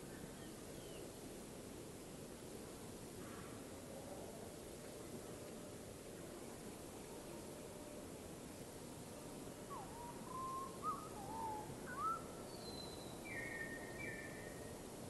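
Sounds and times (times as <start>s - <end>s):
steady background hiss: 0.0s - 15.0s
birds whistling calls: 9.7s - 14.6s.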